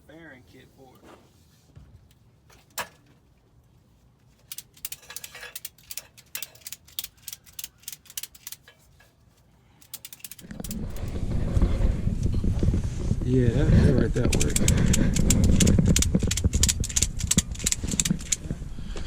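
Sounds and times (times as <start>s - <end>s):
mechanical clicking and rattling: 4.3s - 9.1s, 9.8s - 11.2s, 14.1s - 18.5s
loud low rumble: 10.4s - 19.0s.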